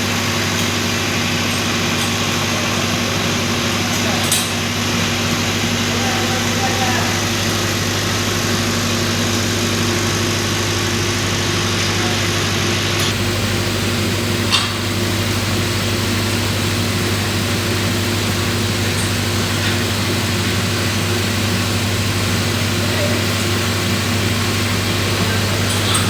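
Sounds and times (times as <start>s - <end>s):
machine engine running: 12.8s - 26.0s.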